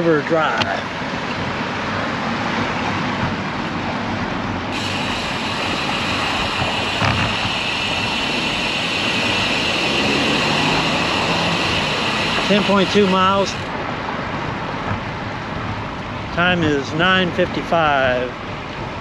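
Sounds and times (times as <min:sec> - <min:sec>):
road traffic noise: 0:00.0 - 0:19.0
wind: 0:00.0 - 0:19.0
bright hiss: 0:04.7 - 0:13.7.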